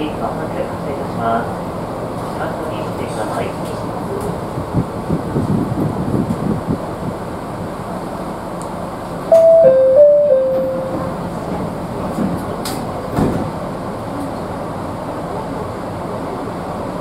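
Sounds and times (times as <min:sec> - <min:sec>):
train interior hum: 0:00.0 - 0:17.0
four-note electronic chime: 0:09.3 - 0:11.3.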